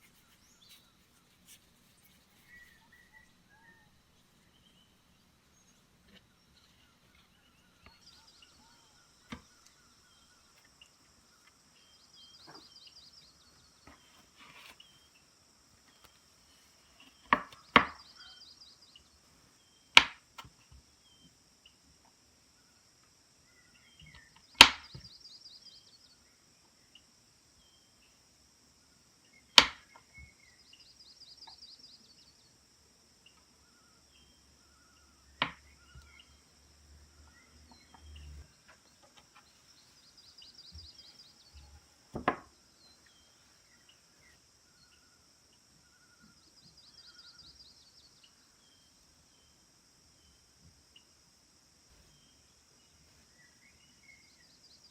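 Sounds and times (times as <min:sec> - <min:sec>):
bird chirps: 0:00.0 - 0:21.4, 0:23.5 - 0:28.2, 0:29.2 - 0:32.6, 0:33.2 - 0:49.6
high insect drone with trills: 0:00.0 - 0:54.9
knocks on wood: 0:42.1 - 0:42.5.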